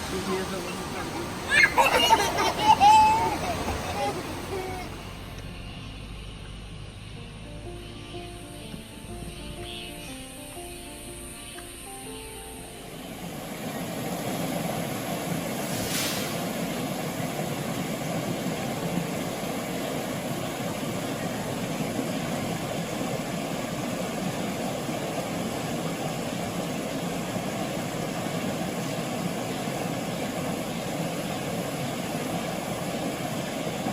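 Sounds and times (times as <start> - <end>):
stream rushing: 0.0 - 5.6, 12.7 - 33.9.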